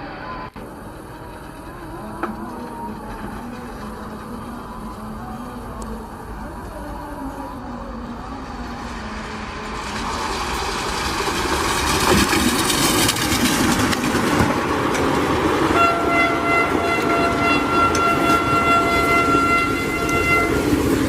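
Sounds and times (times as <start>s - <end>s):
train rumbling and rattling: 0.0s - 21.0s
train horn blast: 15.7s - 21.0s.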